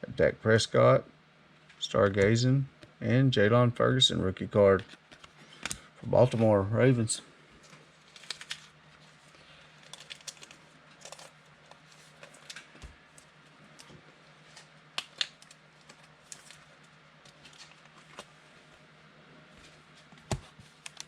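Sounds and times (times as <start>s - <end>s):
steady low hum: 0.0s - 21.0s
cards being flipped: 4.8s - 6.5s, 7.6s - 9.1s.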